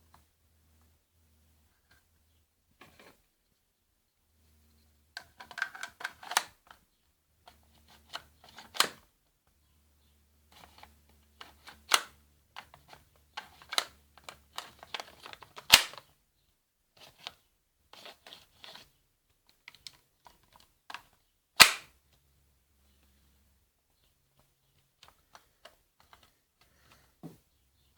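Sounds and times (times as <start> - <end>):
airsoft pistol firing: 15.7 - 16.0, 21.6 - 21.9.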